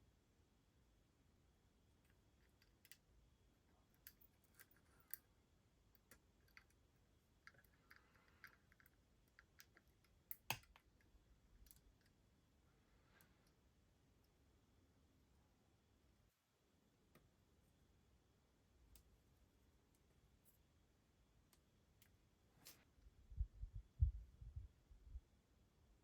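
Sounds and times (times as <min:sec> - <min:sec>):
clicks and taps of small parts: 0:07.4 - 0:12.2
soft rustle or scrape: 0:22.5 - 0:23.0.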